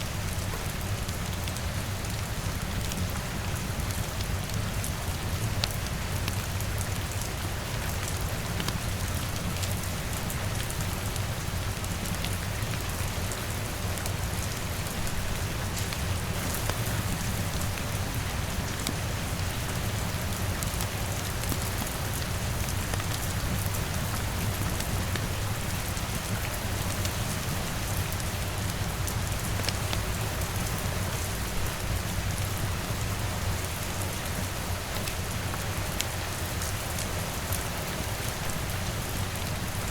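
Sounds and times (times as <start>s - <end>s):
rain pattering on a window: 0.0s - 39.9s
wood fire crackling: 15.7s - 23.2s.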